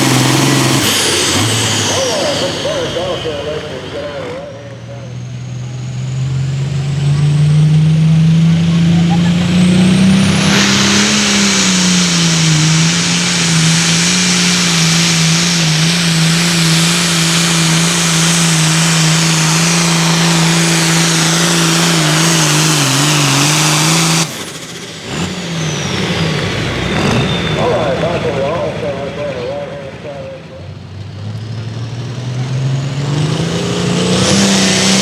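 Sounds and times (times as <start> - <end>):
tractor engine at full throttle: 0.0 - 35.0.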